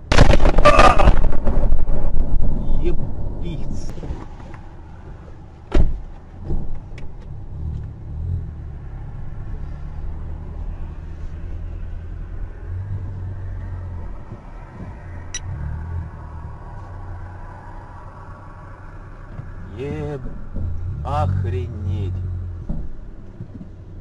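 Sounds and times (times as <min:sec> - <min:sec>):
car engine and tyre rumble: 0:00.0 - 0:24.0
loud sharp thump: 0:05.7 - 0:06.8.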